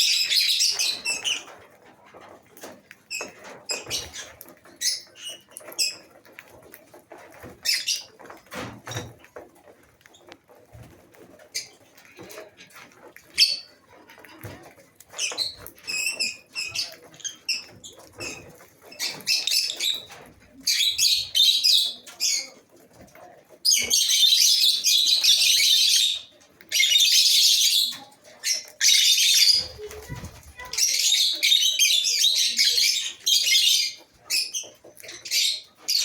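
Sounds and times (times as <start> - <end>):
lovebirds chirping and chattering: 0.0 - 36.0.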